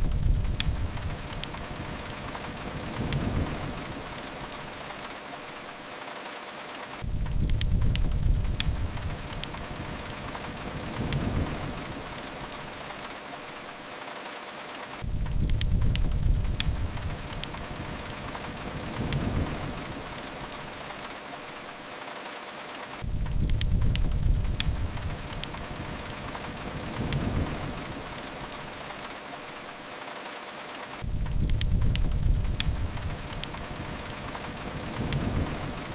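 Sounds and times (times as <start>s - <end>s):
low rumble: 0.0s - 1.7s, 31.0s - 33.9s
fireplace crackles: 0.0s - 35.9s
rain on a window: 0.0s - 35.9s.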